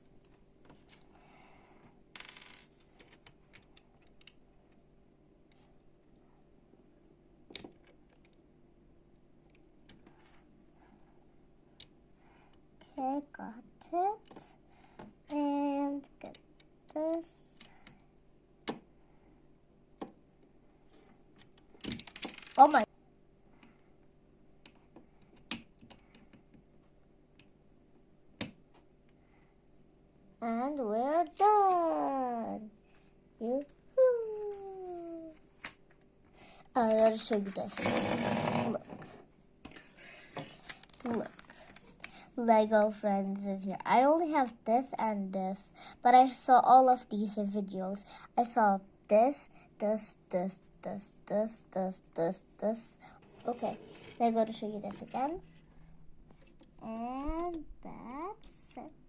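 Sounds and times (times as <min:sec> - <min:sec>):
plastic bricks clicking together: 0:21.8 - 0:22.8.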